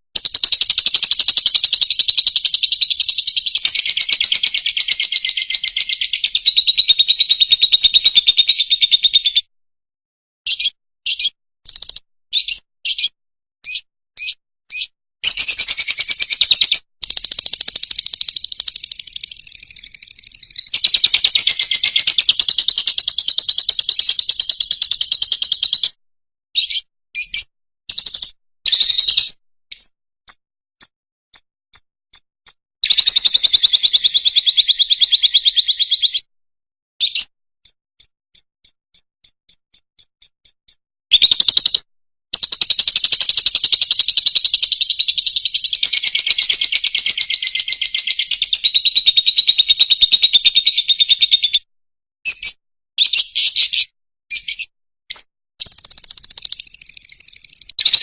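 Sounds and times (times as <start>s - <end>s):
short bird chirps: 10.5s - 25.9s, 26.6s - 36.3s, 37.0s - 51.6s, 52.3s - 58.0s
bird chattering trills: 13.7s - 25.9s.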